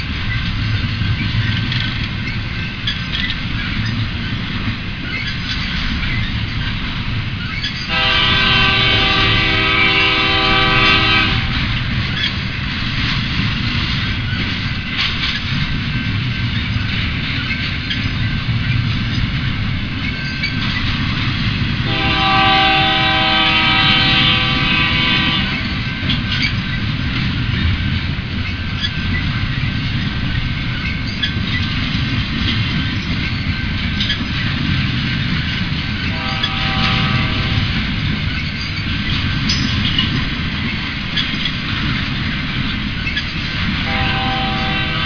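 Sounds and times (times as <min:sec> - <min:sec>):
freight train rumble: 0:00.0 - 0:45.0
locomotive air horn blasts: 0:07.9 - 0:11.8, 0:21.8 - 0:25.8, 0:36.1 - 0:37.8, 0:43.8 - 0:45.0.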